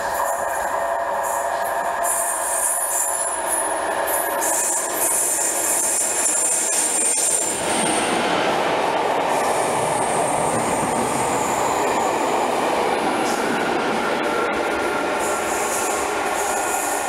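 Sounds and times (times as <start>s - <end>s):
train wheels rushing on rail: 0.0s - 17.0s.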